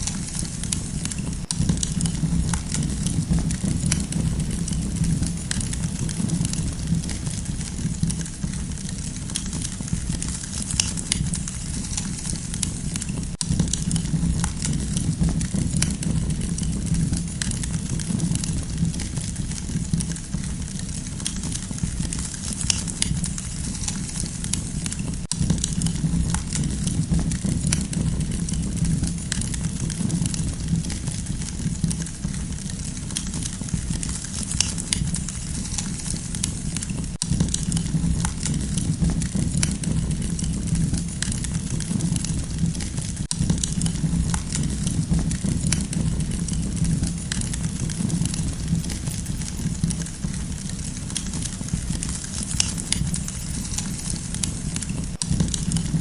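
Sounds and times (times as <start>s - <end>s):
campfire crackling: 0.0s - 8.3s, 43.4s - 56.0s.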